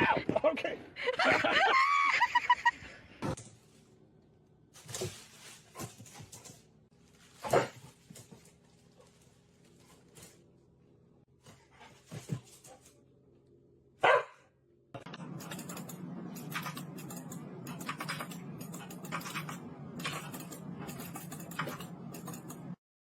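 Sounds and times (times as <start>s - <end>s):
steady low hum: 3.0s - 22.8s
dog barking: 14.0s - 14.5s.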